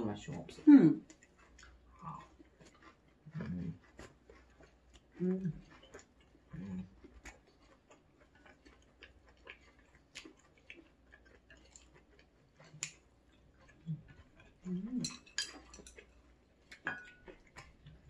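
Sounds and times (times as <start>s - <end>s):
soft chewing and mouth clicks: 0.1s - 18.0s.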